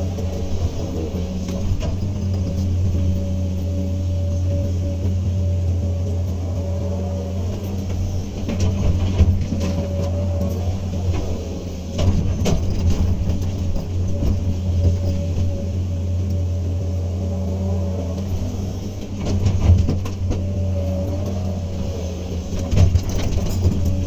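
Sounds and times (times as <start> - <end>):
excavator diesel engine running: 0.0 - 24.0
metal knocks and clatters: 7.4 - 15.8, 19.0 - 24.0.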